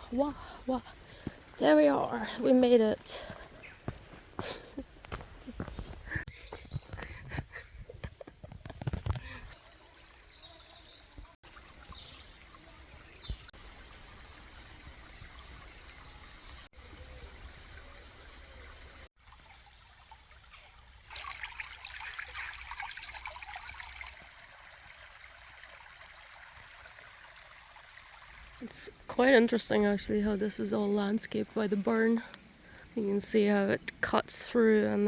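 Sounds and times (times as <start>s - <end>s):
stream trickling over stones: 8.9s - 35.0s.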